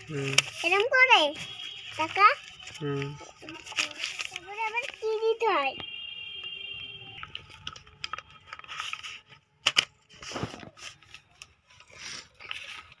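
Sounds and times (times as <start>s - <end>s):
paper rustling and crinkling: 0.0s - 5.6s, 7.2s - 13.0s
paper snapping: 9.6s - 11.5s.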